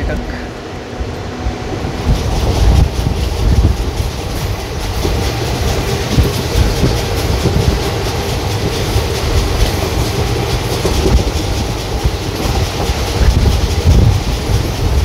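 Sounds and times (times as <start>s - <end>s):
train rumble: 0.0s - 15.0s
wheels clicking over rail joints: 2.1s - 15.0s.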